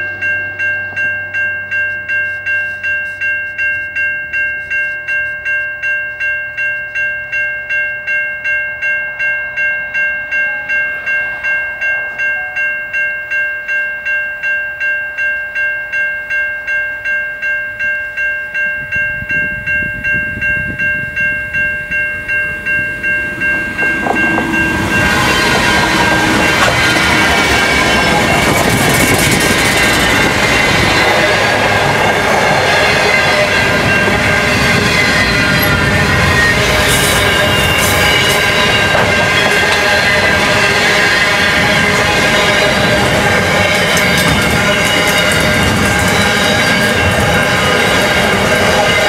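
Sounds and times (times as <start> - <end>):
level crossing bell ringing: 0.0 - 49.0
freight train rumbling: 18.8 - 49.0
train wheels clattering on rails: 23.0 - 49.0.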